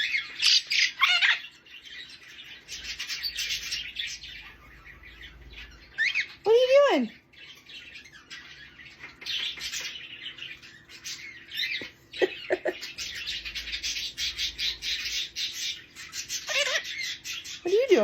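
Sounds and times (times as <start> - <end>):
parrot chattering: 0.0 - 1.6, 5.6 - 7.2, 11.0 - 18.0
parrot chirps: 0.0 - 18.0.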